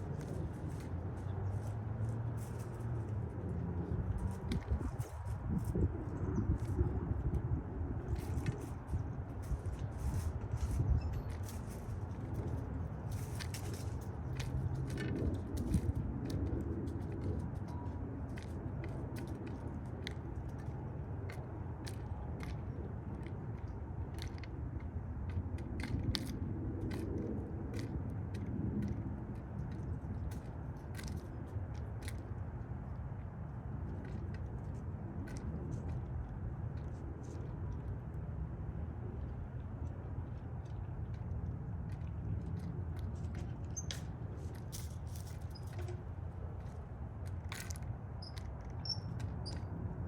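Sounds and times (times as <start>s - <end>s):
birds pecking seed clicks: 0.0s - 38.4s, 39.0s - 50.0s
low steady rumble: 0.0s - 50.0s
beaks pecking at seed: 41.8s - 46.0s, 47.4s - 49.8s.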